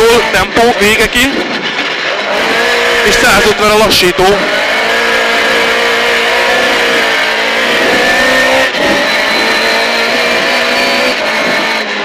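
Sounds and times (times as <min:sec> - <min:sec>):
car engine at full throttle: 0:00.0 - 0:12.0.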